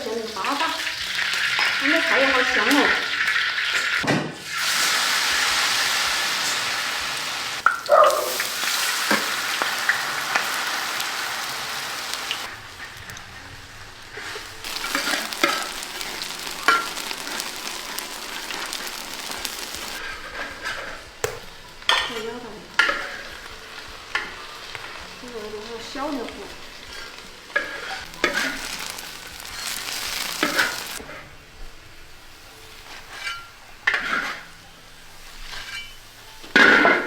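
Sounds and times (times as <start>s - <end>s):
fritters sizzling in hot oil: 0.0s - 20.0s, 22.8s - 31.0s.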